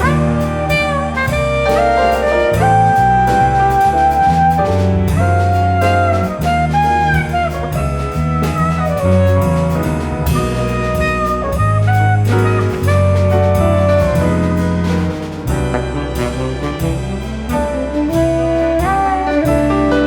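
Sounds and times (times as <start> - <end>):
drums: 0.0 - 20.0
piano: 0.0 - 20.0
tenor saxophone: 0.0 - 20.0
walking bass: 0.0 - 20.0
strings: 14.5 - 18.2.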